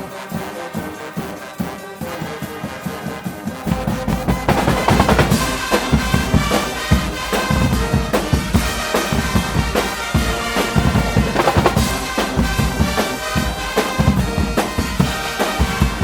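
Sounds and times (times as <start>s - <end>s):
carnival brass band playing: 0.0s - 16.0s
heavy drum beats: 3.5s - 16.0s.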